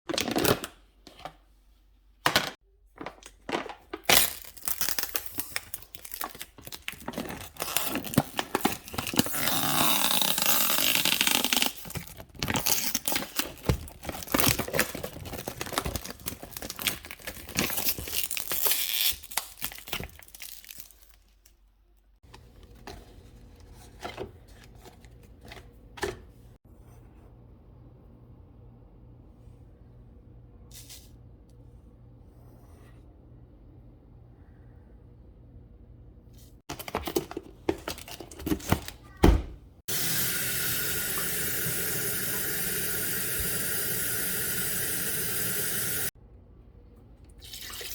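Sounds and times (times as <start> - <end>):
packaging crinkling and tearing: 3.0 - 21.6.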